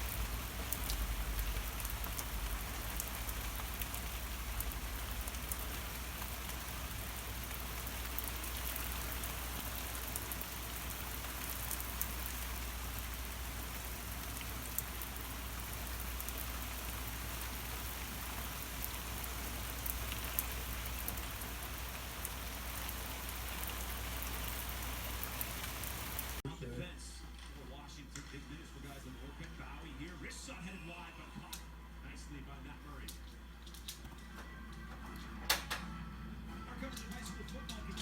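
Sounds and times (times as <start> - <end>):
heavy rain pouring: 0.0 - 26.4
raindrops ticking: 0.0 - 26.4.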